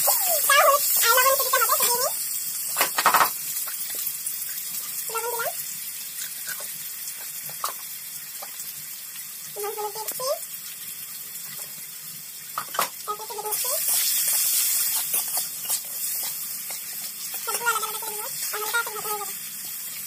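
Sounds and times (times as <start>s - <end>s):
potato slices sizzling in oil: 0.0s - 20.0s
metal spatula scraping: 13.8s - 18.7s.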